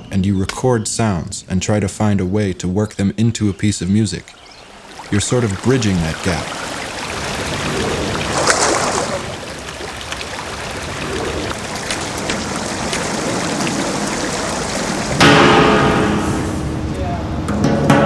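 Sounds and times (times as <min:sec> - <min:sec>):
running water rushing: 0:03.6 - 0:17.5
pitched sound: 0:15.2 - 0:17.0.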